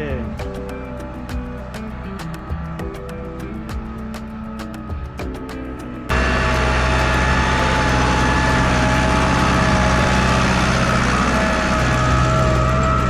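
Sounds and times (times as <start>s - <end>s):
tractor engine rumble with whine: 0.0s - 13.0s.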